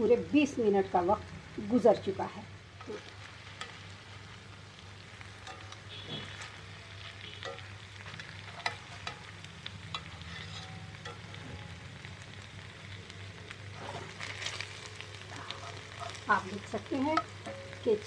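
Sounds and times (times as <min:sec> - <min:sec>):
chicken sizzling in a pan: 0:00.0 - 0:18.0
metal tongs clicking on pan: 0:02.8 - 0:03.8, 0:05.4 - 0:05.8, 0:07.4 - 0:09.3, 0:09.9 - 0:11.4, 0:16.9 - 0:17.9.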